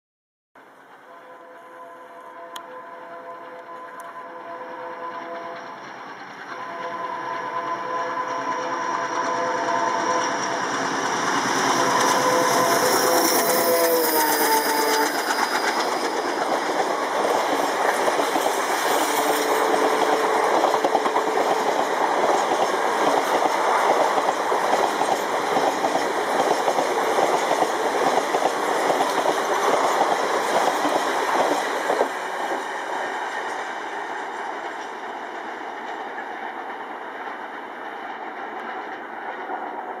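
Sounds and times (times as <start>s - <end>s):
diesel locomotive passing: 0.6s - 40.0s
multi-tone train horn: 1.0s - 5.8s, 6.5s - 16.0s, 18.7s - 23.3s
train cars rushing clatter: 3.3s - 40.0s.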